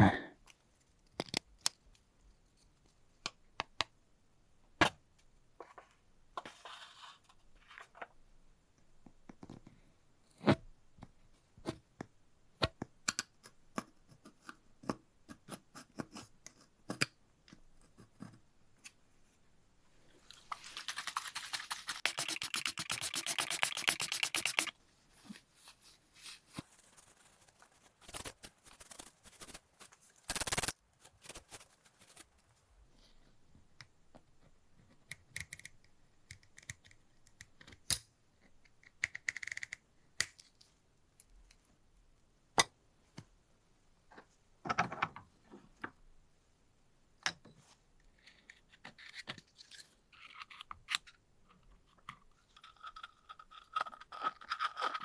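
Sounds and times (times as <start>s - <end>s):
fast even ticking: 26.6s - 32.7s
metal scraping: 26.6s - 32.8s.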